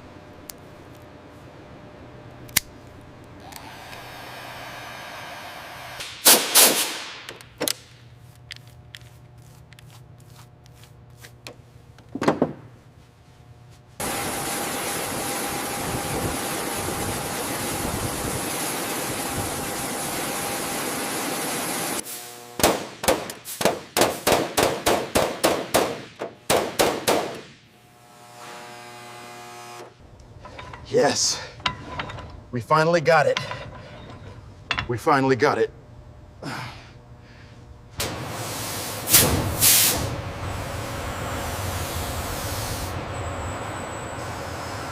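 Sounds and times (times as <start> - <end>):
sharp hammering knocks: 22.6 - 27.6
metal tool clanks: 30.4 - 31.0, 31.6 - 32.4, 33.3 - 35.0.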